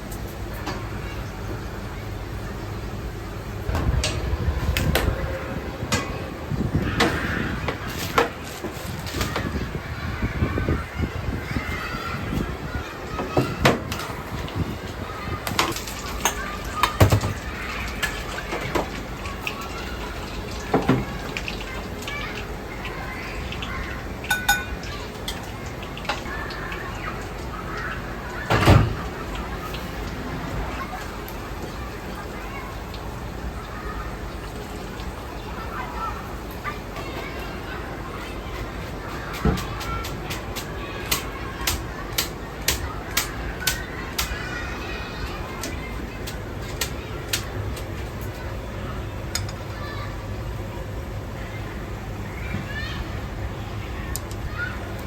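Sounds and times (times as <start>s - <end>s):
kitchen equipment rumble: 0.0s - 55.0s
utensils and pans clanking: 15.4s - 19.7s, 24.2s - 26.6s, 49.3s - 49.7s.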